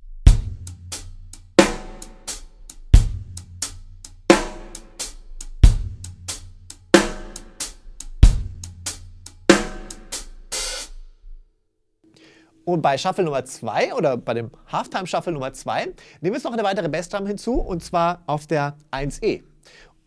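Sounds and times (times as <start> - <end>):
bass drum: 0.0 - 11.4
hi-hat ticking: 0.2 - 11.2
snare drum: 0.3 - 11.0.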